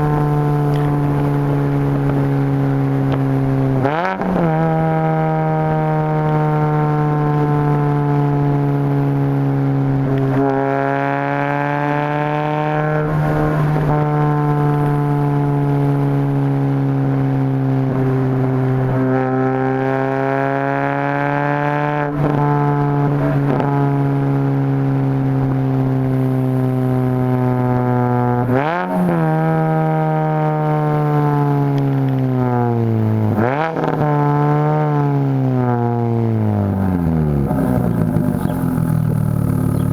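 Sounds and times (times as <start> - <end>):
car exhaust droning: 0.0 - 20.1, 22.4 - 39.9.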